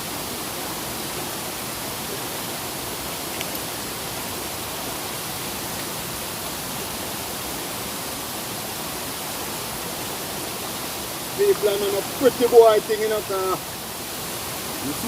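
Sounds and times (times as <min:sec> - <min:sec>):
heavy rain hissing: 0:00.0 - 0:15.0
small tick: 0:03.3 - 0:03.7.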